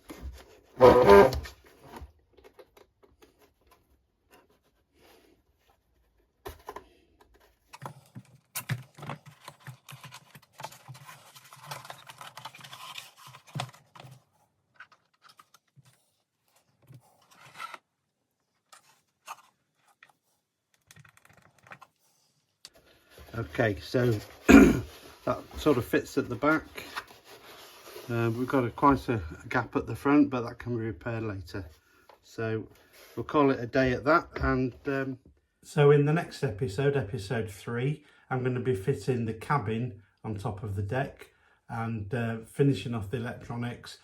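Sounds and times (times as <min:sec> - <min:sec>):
loud short rasp: 0:00.8 - 0:01.5
small clicks taps and scrapes: 0:06.5 - 0:17.8, 0:18.6 - 0:22.0.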